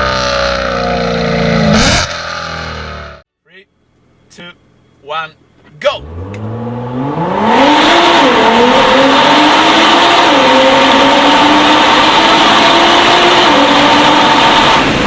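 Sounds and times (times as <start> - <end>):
car engine accelerating hard: 6.0 - 15.0.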